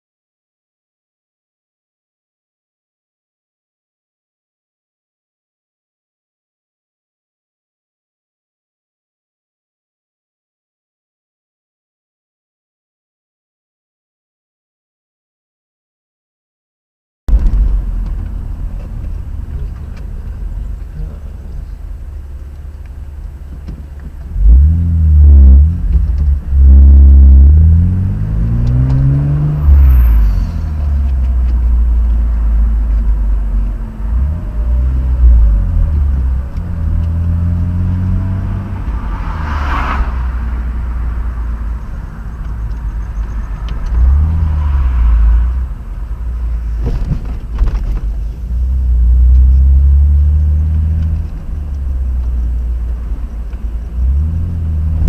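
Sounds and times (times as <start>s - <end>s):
car engine revving: 17.3s - 46.8s, 48.2s - 55.0s
road noise: 17.3s - 55.0s.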